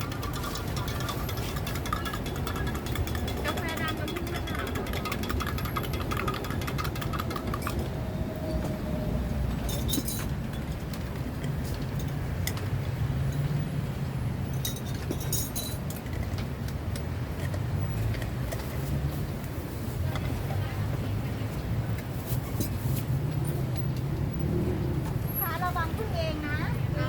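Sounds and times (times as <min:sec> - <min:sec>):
utensils and ice clinking: 0:00.0 - 0:07.9, 0:09.6 - 0:13.6, 0:14.5 - 0:19.0.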